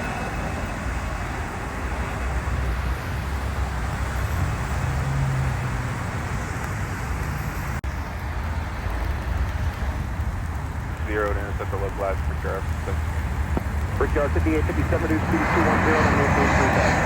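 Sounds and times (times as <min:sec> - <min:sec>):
jet engines rumbling: 0:00.0 - 0:17.0
rain hiss: 0:06.1 - 0:17.0.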